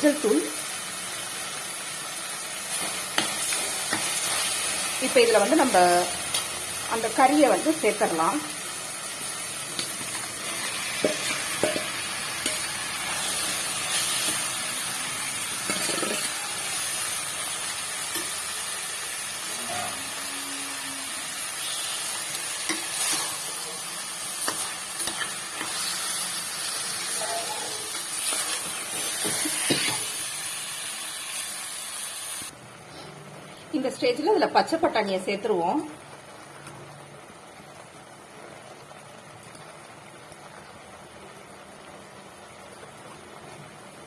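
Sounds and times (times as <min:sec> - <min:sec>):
meat sizzling in oil: 0:00.0 - 0:32.6
spatula scraping and knocking pan: 0:09.8 - 0:14.6, 0:15.6 - 0:16.9, 0:21.7 - 0:23.6, 0:27.9 - 0:30.1.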